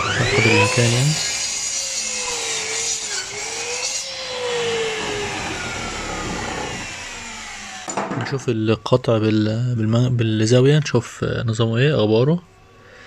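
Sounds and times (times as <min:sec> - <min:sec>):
miter saw cutting wood: 0:00.0 - 0:07.9.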